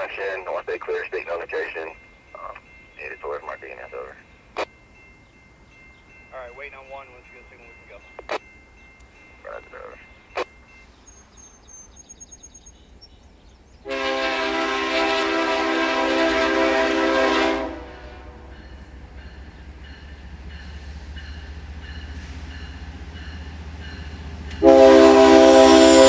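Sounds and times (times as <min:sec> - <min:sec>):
locomotive rumble: 0:00.0 - 0:26.0
locomotive air horn blast: 0:13.8 - 0:18.5, 0:24.6 - 0:26.0.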